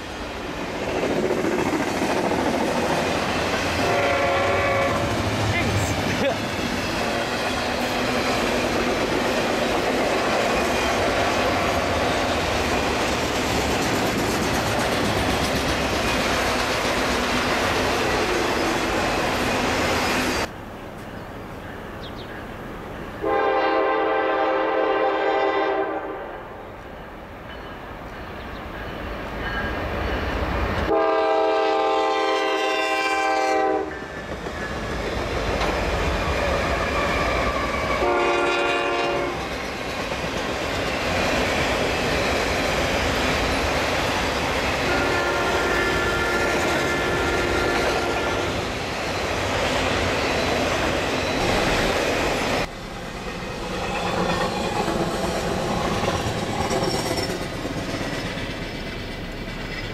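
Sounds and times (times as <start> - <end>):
freight train rumbling past: 0.0 - 59.9
train air horn blasts: 3.8 - 5.1, 23.2 - 26.6, 30.9 - 34.1, 37.0 - 39.5, 44.8 - 48.6.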